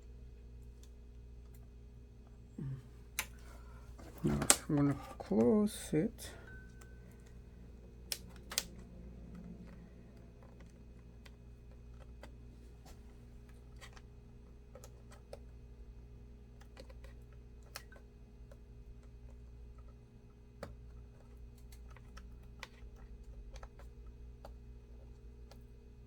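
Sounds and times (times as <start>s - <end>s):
steady low hum: 0.0s - 26.0s
plastic laptop parts clicking: 8.0s - 12.4s, 14.7s - 15.6s, 16.5s - 20.0s, 20.6s - 25.7s.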